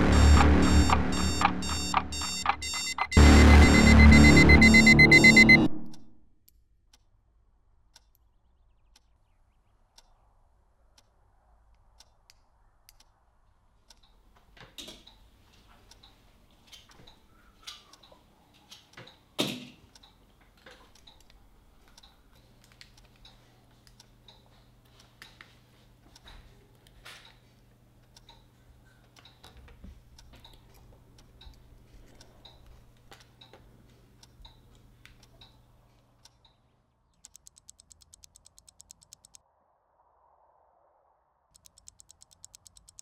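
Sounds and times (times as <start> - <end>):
small metallic tool clicks: 37.2 - 39.4, 41.6 - 43.0.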